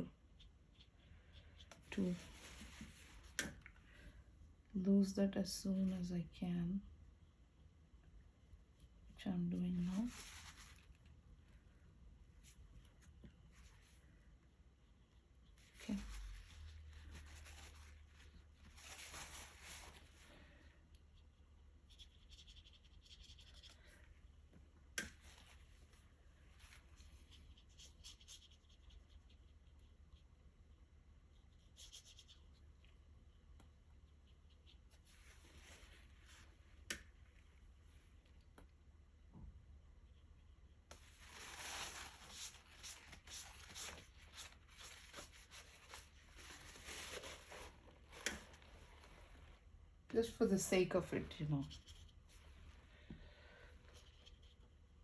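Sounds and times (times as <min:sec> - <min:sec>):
paintbrush strokes on paper: 0:00.4 - 0:03.4, 0:09.7 - 0:11.1, 0:15.1 - 0:20.5, 0:33.9 - 0:36.9, 0:40.1 - 0:53.0
paintbrush scratching on paper: 0:21.2 - 0:23.8, 0:31.3 - 0:32.6.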